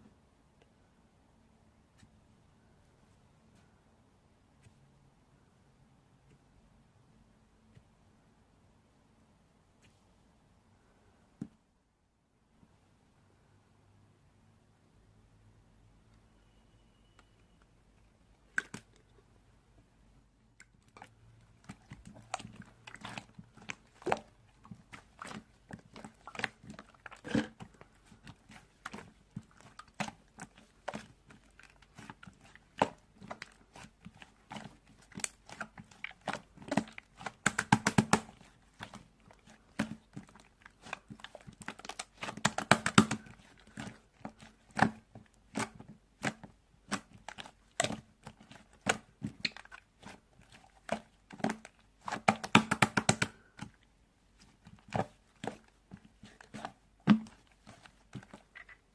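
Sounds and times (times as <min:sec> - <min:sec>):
slime squished by hand: 0:20.6 - 0:53.8, 0:54.4 - 0:58.9.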